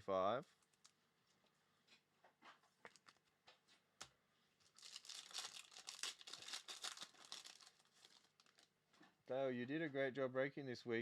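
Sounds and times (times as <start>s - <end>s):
wrapper tearing and crinkling: 4.6s - 8.7s.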